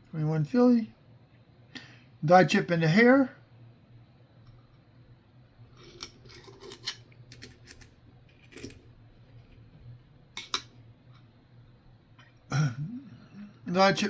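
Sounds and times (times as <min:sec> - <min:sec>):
coins clinking: 0:07.3 - 0:08.8.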